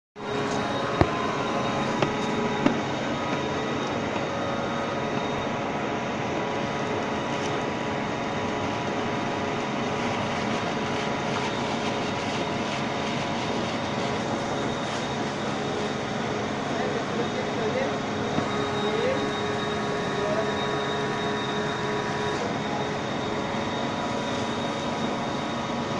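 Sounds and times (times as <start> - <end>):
baler machine humming: 0.2 - 25.9.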